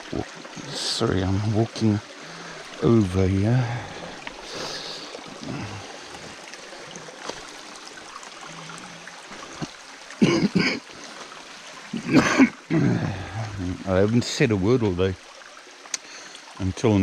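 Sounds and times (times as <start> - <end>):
stream water running: 0.0 - 17.0.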